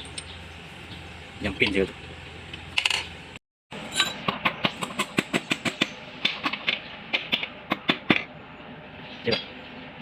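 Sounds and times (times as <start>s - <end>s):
metal tools tapping and clinking: 3.9s - 4.2s.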